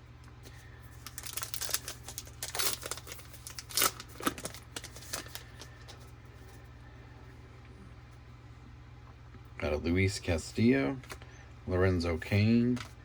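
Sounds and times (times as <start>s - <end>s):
card pack wrapper tearing and crinkling: 0.9s - 5.7s.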